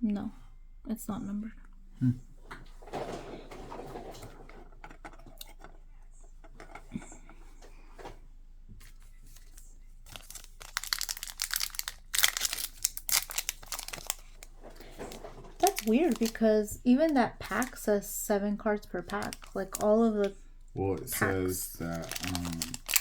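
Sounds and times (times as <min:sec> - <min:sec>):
foil wrapper crinkling: 0:08.9 - 0:17.9, 0:18.9 - 0:20.1, 0:21.0 - 0:23.0.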